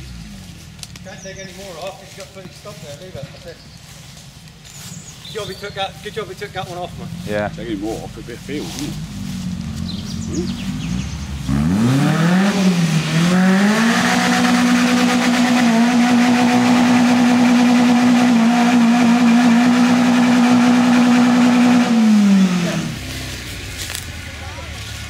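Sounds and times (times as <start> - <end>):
car engine revving hard: 8.8 - 23.3.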